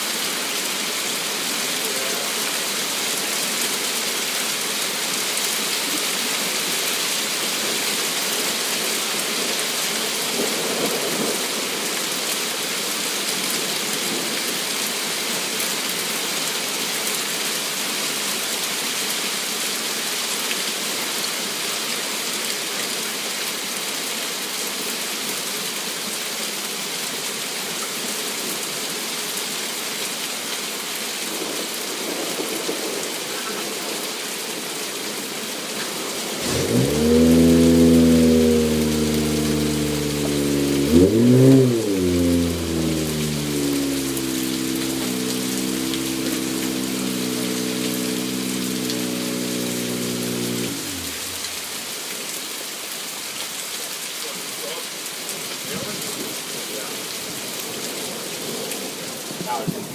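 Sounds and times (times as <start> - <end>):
heavy hail and rain: 30.9 - 35.0.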